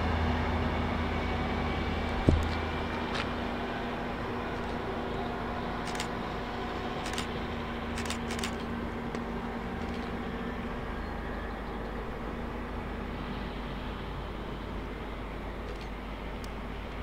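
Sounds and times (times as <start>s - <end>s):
diesel train running: 0.0s - 17.0s
sharp clicks: 8.0s - 8.7s.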